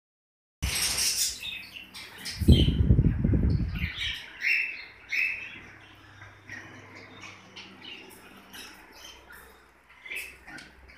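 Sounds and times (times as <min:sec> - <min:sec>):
love birds chirping: 0:00.6 - 0:10.9
loud low rustling rumble: 0:02.5 - 0:04.0.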